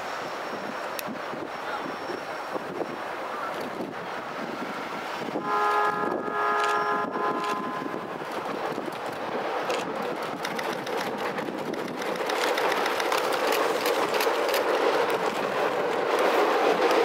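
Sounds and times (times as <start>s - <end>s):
train wheels rumbling on rails: 0.0s - 17.0s
wheels clacking over rail joints: 0.8s - 17.0s.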